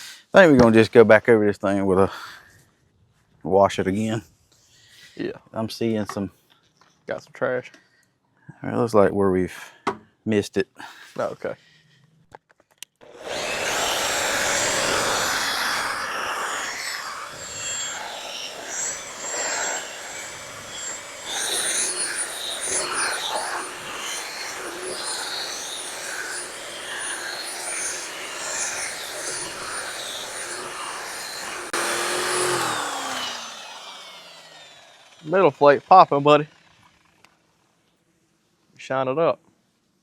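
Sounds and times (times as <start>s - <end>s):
electric rotary buffer running: 13.0s - 37.3s
faint high whine: 13.1s - 36.1s.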